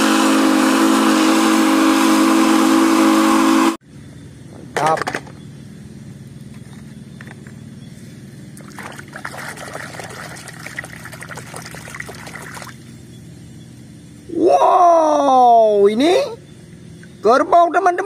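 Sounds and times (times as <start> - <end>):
steady low hum: 0.0 - 18.0
water splashing in a tub: 8.6 - 12.9.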